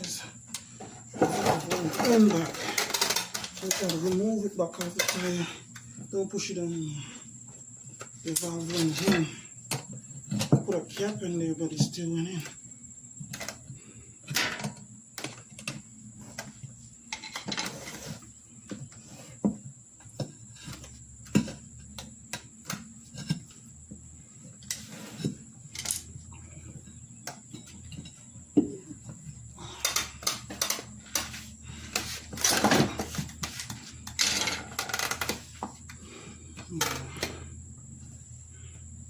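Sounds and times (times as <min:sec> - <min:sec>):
tools clicking and knocking: 0:29.8 - 0:31.3.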